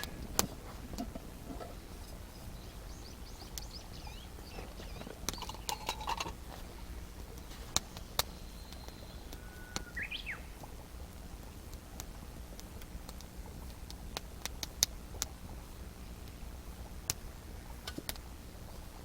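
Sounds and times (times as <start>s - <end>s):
small birds chirping: 0.0s - 11.0s
sharp snaps and clicks: 3.5s - 3.8s, 11.7s - 15.4s, 17.0s - 17.2s, 17.8s - 18.3s.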